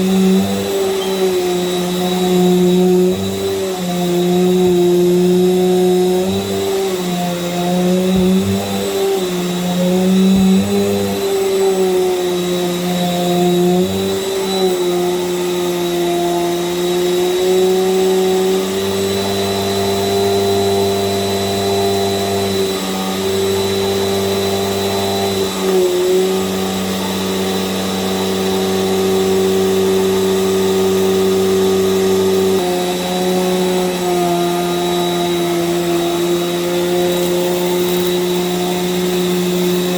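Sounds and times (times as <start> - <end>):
vacuum cleaner motor whining: 0.0 - 39.9.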